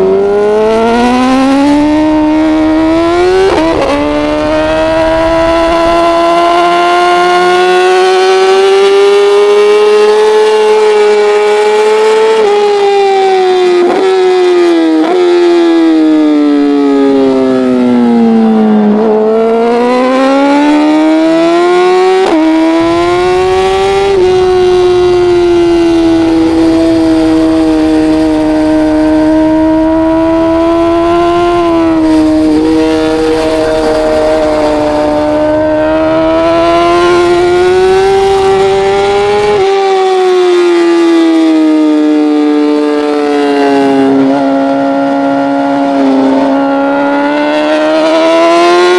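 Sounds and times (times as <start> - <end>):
rushing wind noise: 0.0 - 8.4, 21.2 - 40.7
racing motorcycle engine: 0.0 - 48.9.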